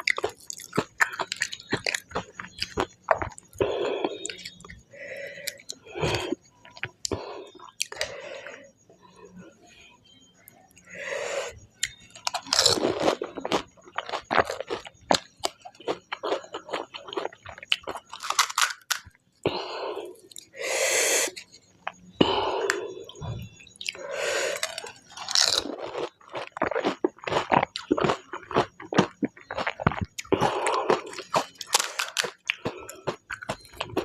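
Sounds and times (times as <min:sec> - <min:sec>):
wet chewing: 0:00.0 - 0:08.2, 0:23.8 - 0:34.0
crisp shells cracking: 0:18.0 - 0:19.1, 0:24.5 - 0:25.8, 0:31.2 - 0:32.6.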